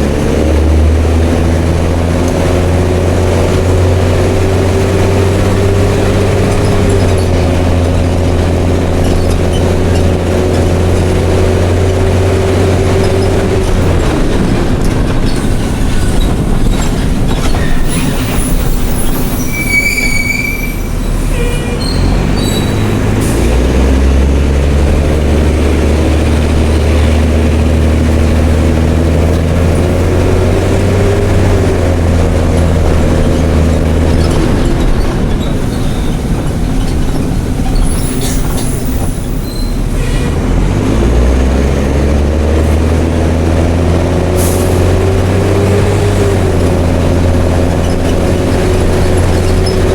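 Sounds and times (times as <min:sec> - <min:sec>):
bus diesel engine: 0:00.0 - 0:49.9
high squeal: 0:15.2 - 0:23.6, 0:33.3 - 0:40.4.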